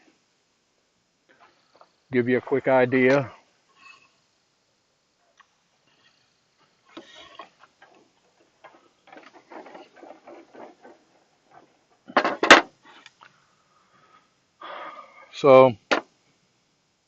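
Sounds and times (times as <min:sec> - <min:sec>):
wooden boards knocking together: 0:07.0 - 0:12.8, 0:15.9 - 0:16.1.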